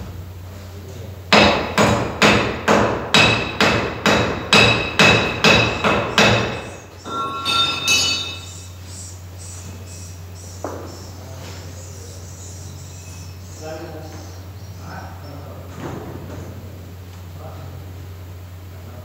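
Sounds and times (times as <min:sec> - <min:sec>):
sharp metallic strikes: 0:04.5 - 0:08.7
high-pitched ringing tones: 0:05.8 - 0:15.4.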